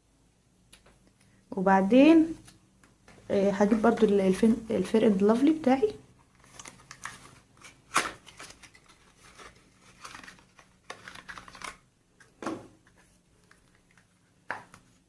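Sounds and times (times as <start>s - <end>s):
packaging rustling: 6.2s - 15.0s.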